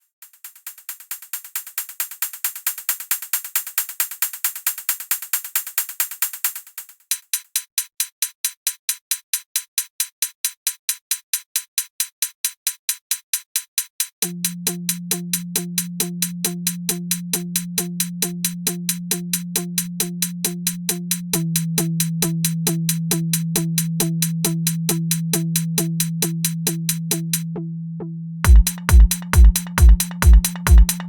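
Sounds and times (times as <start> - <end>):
electronic percussion ticks: 0.2 - 19.9, 28.5 - 31.0.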